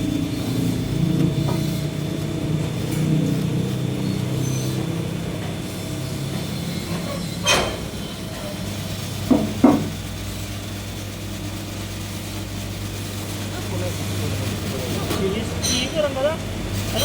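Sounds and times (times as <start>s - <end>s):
electric motor humming: 0.0s - 17.0s
sharp knocks: 9.3s - 10.0s.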